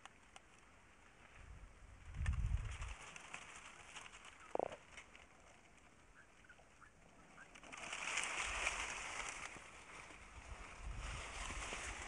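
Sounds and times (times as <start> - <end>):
rustling: 0.0 - 12.0
faint bird chirps: 6.0 - 7.6.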